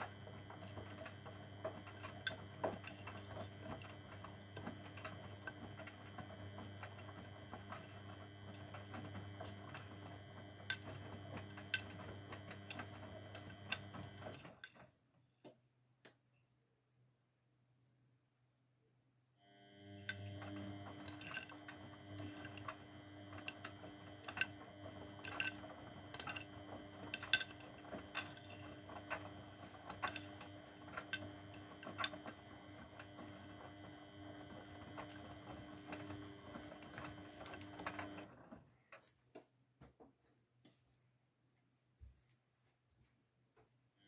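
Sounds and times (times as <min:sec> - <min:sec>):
washing machine drum motor humming: 0:00.0 - 0:14.7, 0:19.4 - 0:38.6.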